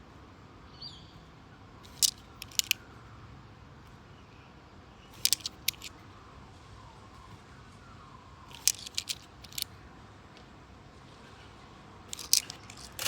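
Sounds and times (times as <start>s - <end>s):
coins clinking: 1.9s - 2.8s, 5.2s - 5.9s, 8.5s - 9.6s, 12.1s - 13.0s.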